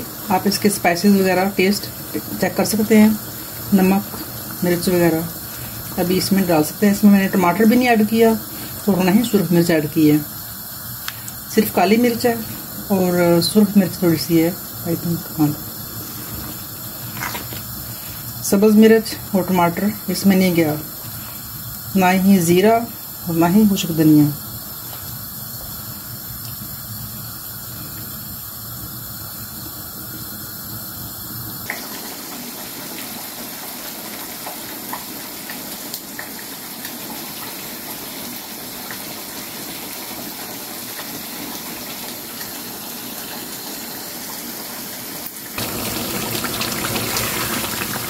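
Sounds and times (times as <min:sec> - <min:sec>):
gravy sizzling with small pops: 0:00.0 - 0:48.0.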